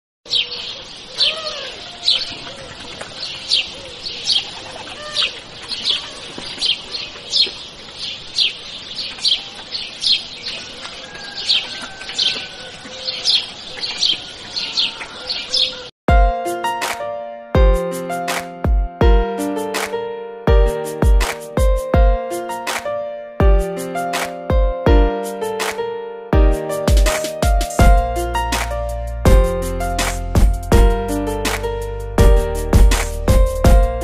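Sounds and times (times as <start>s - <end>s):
bird chirping: 0.3s - 15.9s
fainter lower bird calls: 0.3s - 15.9s
music: 16.1s - 34.0s.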